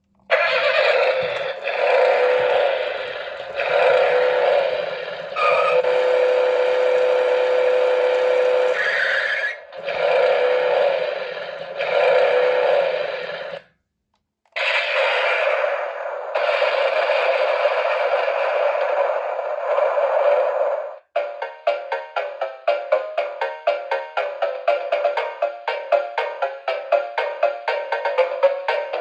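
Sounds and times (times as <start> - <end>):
toy car engine revving effects: 0.3 - 13.6, 14.6 - 21.0.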